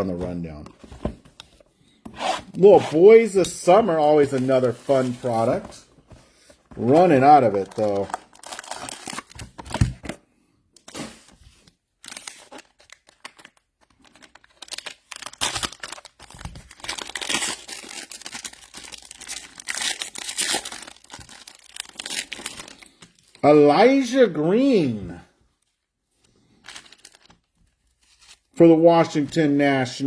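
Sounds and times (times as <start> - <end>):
wrappers torn and crinkled: 6.8 - 9.7, 12.0 - 23.4, 26.6 - 27.5.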